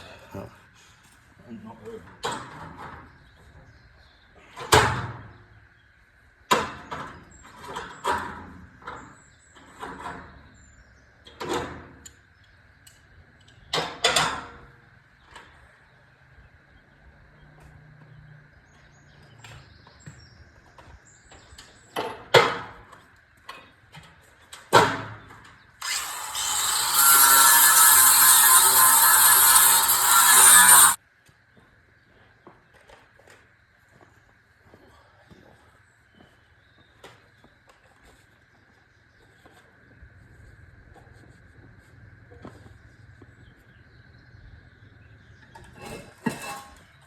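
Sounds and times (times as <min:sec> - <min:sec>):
loud steady noise: 0:25.8 - 0:31.0.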